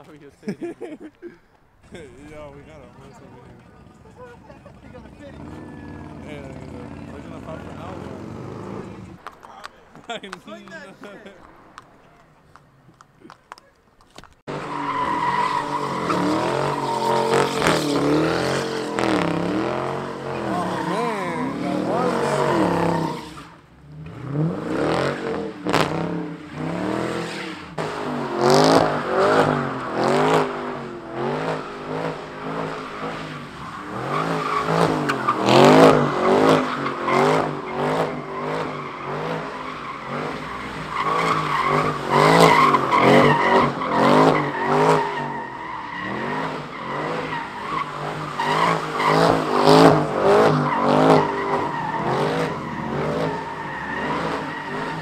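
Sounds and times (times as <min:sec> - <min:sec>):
tyres squealing and skidding: 0:00.0 - 0:55.0
car engine revving: 0:01.6 - 0:55.0
sharp cracks: 0:09.0 - 0:14.5.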